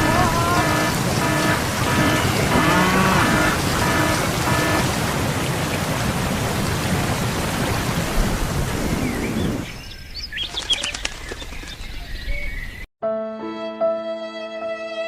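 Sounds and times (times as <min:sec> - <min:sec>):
birds chirping: 0:00.0 - 0:05.4, 0:08.7 - 0:12.9.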